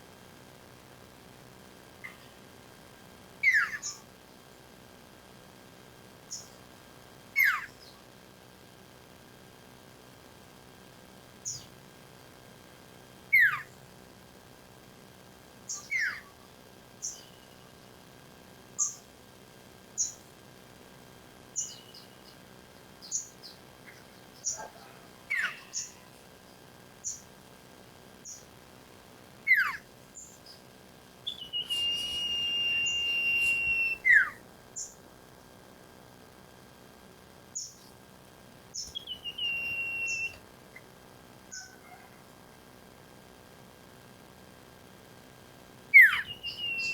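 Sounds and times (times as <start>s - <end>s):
long steady bird whistle: 3.4s - 4.0s, 15.7s - 17.8s, 21.6s - 22.4s, 25.3s - 26.1s, 31.2s - 35.0s, 38.7s - 40.4s, 45.9s - 46.9s
bird short high chips: 31.3s - 34.3s, 39.0s - 40.4s
bird whistles sliding down: 31.3s - 34.3s, 39.0s - 40.4s, 46.0s - 46.9s.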